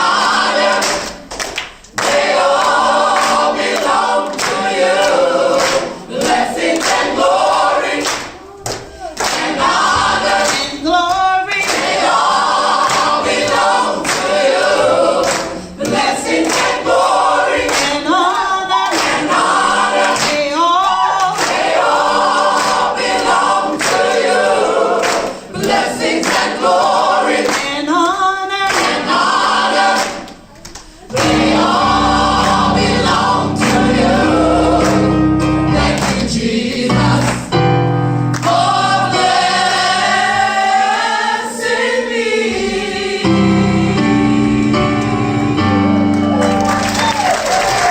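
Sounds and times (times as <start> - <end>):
gospel choir singing a cappella: 0.0 - 47.0
hand claps: 0.7 - 7.2, 7.9 - 12.2, 12.8 - 16.9, 17.6 - 19.4, 20.0 - 21.9, 22.5 - 24.3, 25.0 - 26.6, 27.4 - 27.8, 28.7 - 29.2, 36.0 - 36.3, 46.1 - 47.9.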